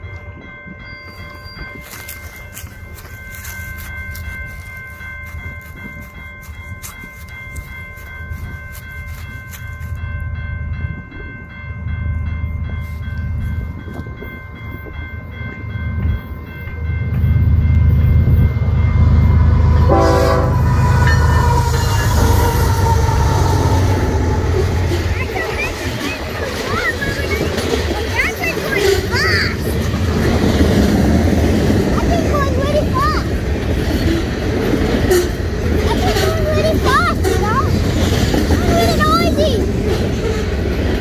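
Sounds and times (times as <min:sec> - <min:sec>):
level crossing bell ringing: 0:00.0 - 0:34.2
diesel locomotive rumble: 0:01.8 - 0:41.0
train horn blast: 0:19.6 - 0:25.2, 0:35.0 - 0:35.4.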